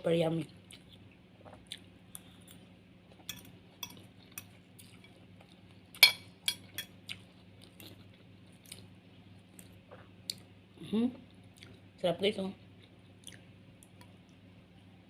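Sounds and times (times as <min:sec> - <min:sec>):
utensils clinking on plate: 0:03.3 - 0:05.2, 0:06.0 - 0:06.9.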